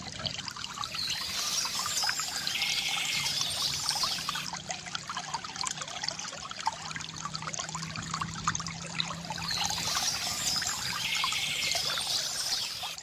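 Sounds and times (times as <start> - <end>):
water trickling from fountain: 0.0 - 13.0
birds chirping: 0.8 - 4.5, 9.3 - 13.0.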